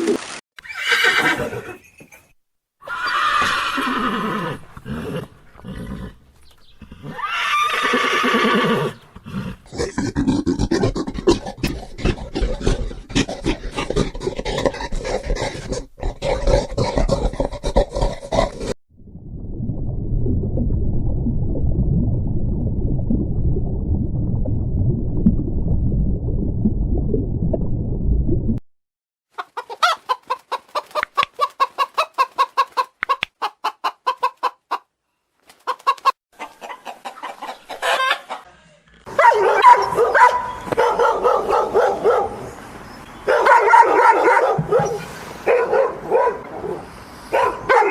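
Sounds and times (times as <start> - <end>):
chickens clucking: 29.4 - 34.9, 35.6 - 38.6.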